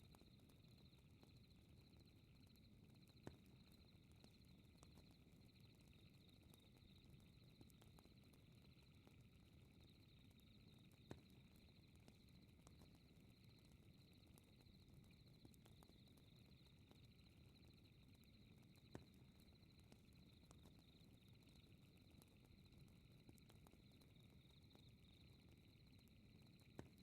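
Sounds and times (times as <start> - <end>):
crickets chirping: 10.0 - 27.0.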